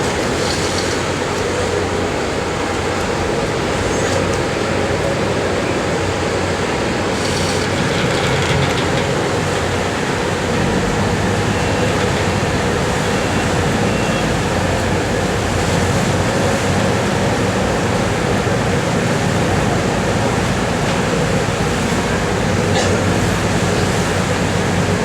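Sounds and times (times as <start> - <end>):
ferry engines droning: 0.0 - 25.0
rushing water: 0.0 - 25.0.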